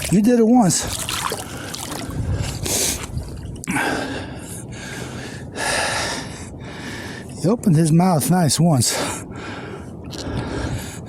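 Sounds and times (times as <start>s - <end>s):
man breathing hard: 1.4s - 7.4s, 8.9s - 11.0s.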